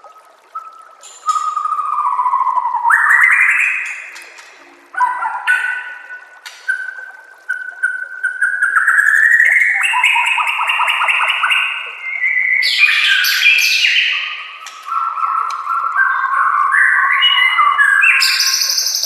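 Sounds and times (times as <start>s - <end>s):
songbird whistling song: 0.0s - 4.2s, 5.0s - 19.0s.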